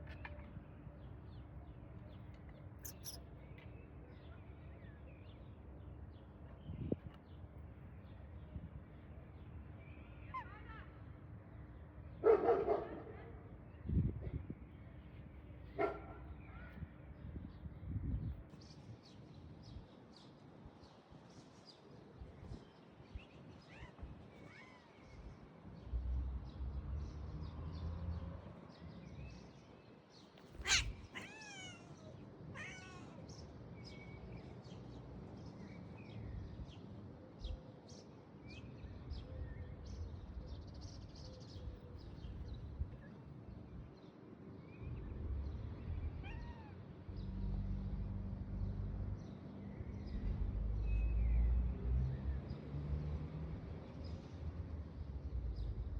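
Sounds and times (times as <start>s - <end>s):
cat meowing: 30.6s - 33.2s, 46.2s - 46.8s.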